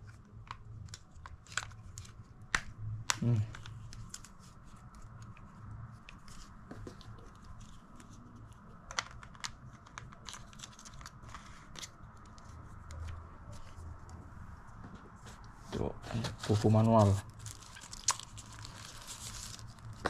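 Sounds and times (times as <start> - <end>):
plastic and paper rustling: 3.2 - 14.0, 15.3 - 20.0.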